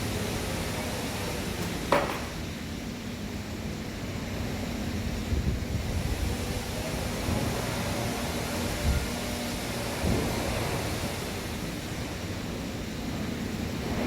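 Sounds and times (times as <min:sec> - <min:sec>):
sharp knock: 0:01.9 - 0:02.4.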